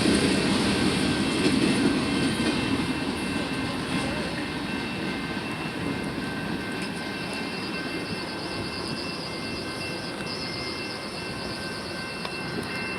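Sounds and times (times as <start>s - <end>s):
train rumbling past: 0.0s - 12.9s
faint high steady tones: 2.6s - 12.9s.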